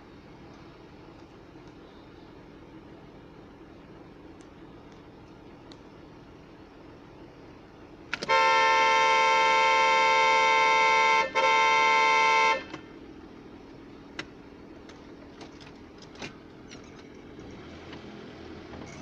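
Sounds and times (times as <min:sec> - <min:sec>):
car horn blasts: 0:08.2 - 0:12.9.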